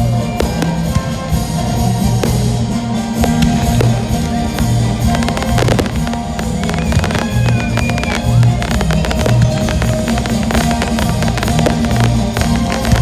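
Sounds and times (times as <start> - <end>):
fireworks banging and crackling: 0.0 - 13.0
rock music with guitar and drums: 0.0 - 13.0.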